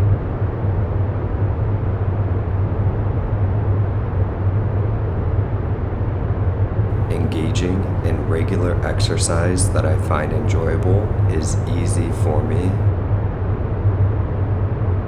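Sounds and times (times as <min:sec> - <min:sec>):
low drone: 0:06.9 - 0:12.9
rumbling hiss: 0:06.9 - 0:12.9.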